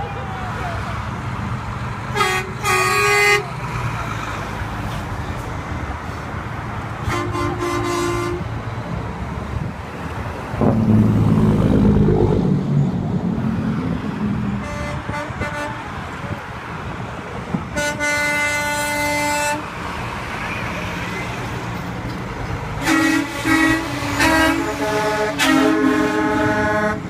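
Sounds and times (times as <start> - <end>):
truck engines rumbling: 0.0 - 27.0
truck horns honking: 2.0 - 3.9, 7.0 - 8.6, 14.4 - 16.1, 17.6 - 19.9, 22.6 - 27.0.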